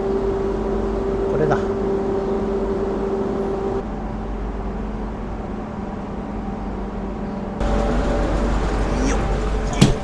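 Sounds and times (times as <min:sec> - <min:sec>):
low held tones: 0:00.0 - 0:03.9
train humming: 0:00.0 - 0:10.0.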